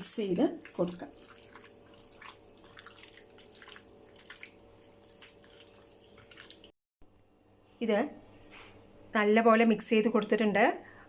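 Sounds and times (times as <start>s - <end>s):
wet squelches of mixing: 0.0s - 6.8s.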